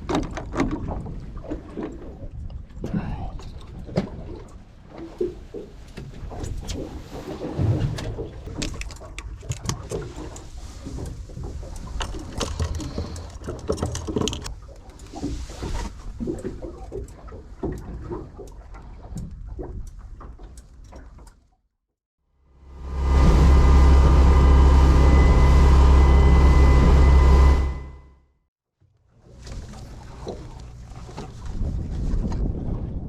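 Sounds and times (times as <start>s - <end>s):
boat engine rumble: 0.0s - 21.2s, 22.5s - 28.2s, 28.8s - 33.0s
water splashes: 29.2s - 33.0s.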